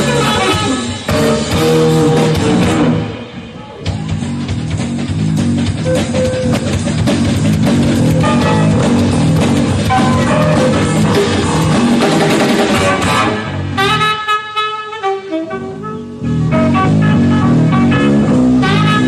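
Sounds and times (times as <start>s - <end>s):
bass guitar: 0.0s - 14.2s, 15.2s - 19.0s
drum kit: 0.0s - 14.4s, 15.4s - 19.0s
electric guitar: 0.0s - 14.4s
jazz-rock band playing: 0.0s - 19.0s.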